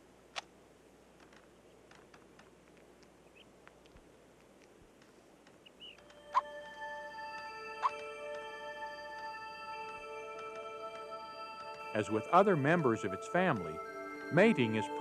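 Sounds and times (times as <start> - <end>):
faint clicks: 1.2 - 6.5, 10.3 - 11.9
small squeaks: 1.2 - 6.5
squirrel chirp: 3.2 - 3.5, 5.6 - 6.5, 7.8 - 8.0
music: 6.0 - 15.0.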